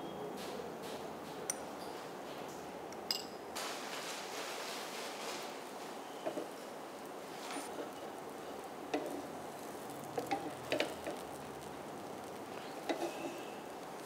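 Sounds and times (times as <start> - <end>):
batter sizzling in oil: 3.6 - 14.0.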